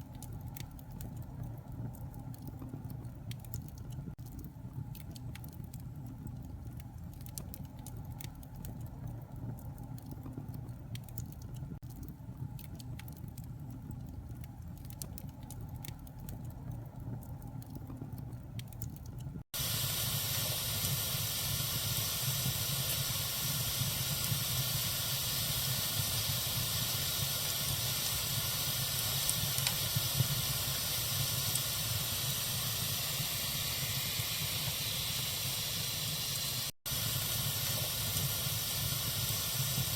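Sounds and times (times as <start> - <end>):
bonfire crackling: 0.0 - 39.9.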